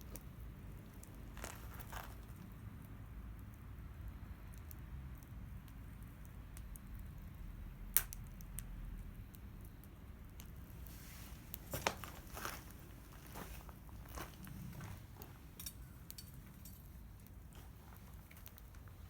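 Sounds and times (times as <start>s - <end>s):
bonfire crackling: 0.0s - 19.0s
sharp fire pops: 7.8s - 9.8s.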